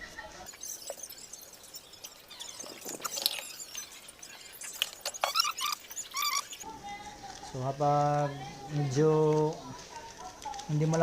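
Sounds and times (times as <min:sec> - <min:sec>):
small animals chirping: 0:00.4 - 0:06.7.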